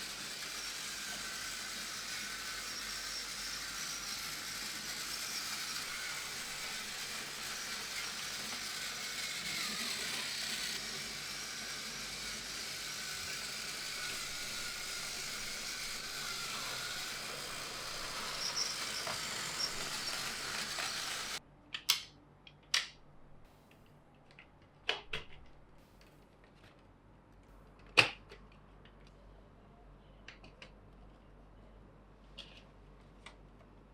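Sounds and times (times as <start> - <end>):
toy train motor whirring: 0.0 - 21.4.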